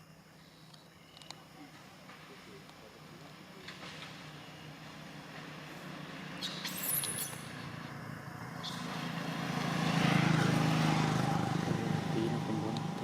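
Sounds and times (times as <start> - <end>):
vehicle engine approaching: 3.2 - 13.0.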